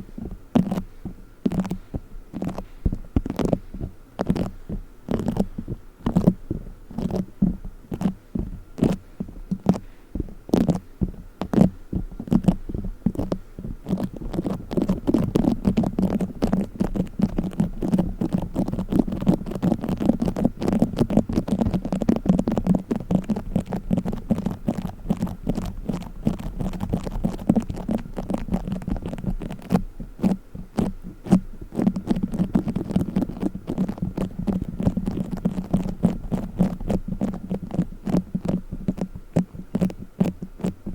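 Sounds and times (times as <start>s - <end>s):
foam being squeezed and kneaded: 2.4s - 9.9s, 10.5s - 40.9s.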